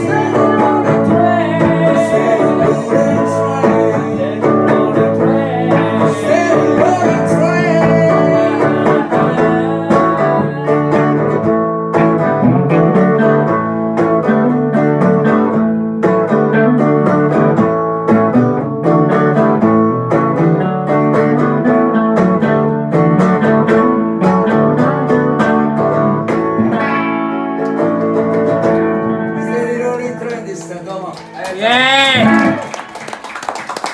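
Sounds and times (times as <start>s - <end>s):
person singing: 0.0s - 11.6s, 29.3s - 30.5s
blues guitar plucking: 0.0s - 32.9s.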